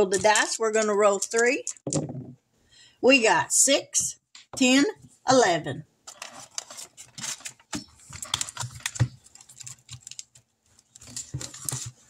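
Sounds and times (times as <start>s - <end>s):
hands clicking and rustling objects: 0.0s - 2.1s, 6.1s - 12.0s.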